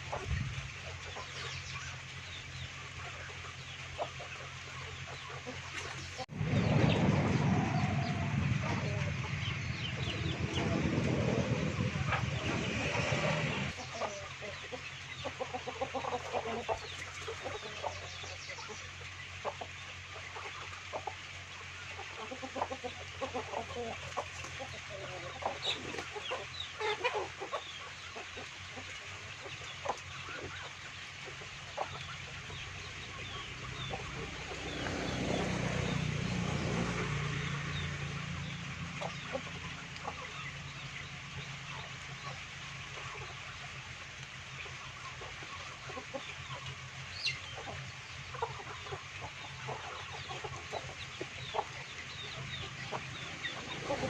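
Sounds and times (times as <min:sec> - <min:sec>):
chickens clucking: 0:00.0 - 0:54.0
low hum: 0:05.8 - 0:13.8.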